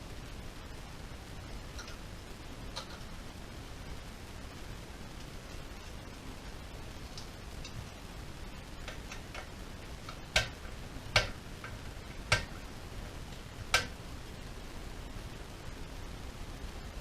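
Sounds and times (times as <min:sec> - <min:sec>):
steady hiss: 0:00.0 - 0:17.0
hard objects clicking: 0:08.8 - 0:12.7.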